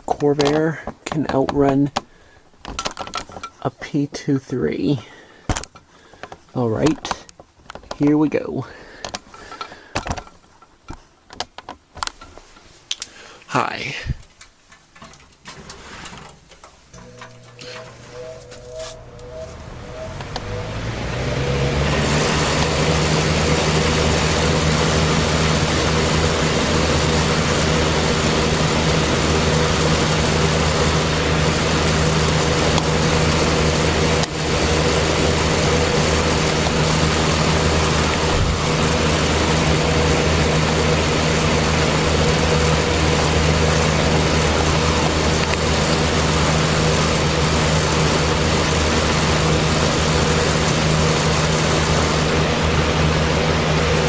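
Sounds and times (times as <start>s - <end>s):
electric fan motor hum: 16.0s - 54.0s
rush of air from fan blades: 19.0s - 54.0s.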